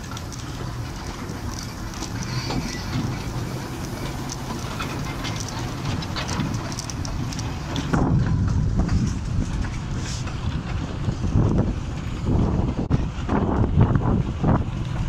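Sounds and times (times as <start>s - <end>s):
clicking and rattling: 0.0s - 11.7s
train wheels rumbling on rails: 0.0s - 15.0s.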